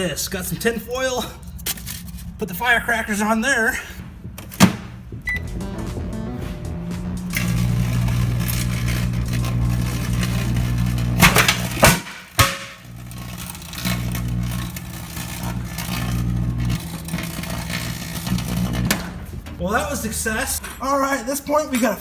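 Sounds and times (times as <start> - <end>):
firecrackers banging: 4.0 - 20.4
microwave oven humming: 5.1 - 19.6.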